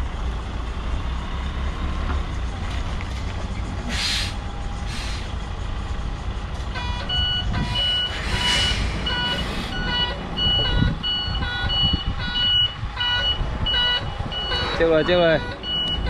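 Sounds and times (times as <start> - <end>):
diesel truck engine running: 0.0 - 16.0
air brake hisses: 3.9 - 5.4, 7.6 - 9.8
reversing alarm beeps: 6.8 - 16.0.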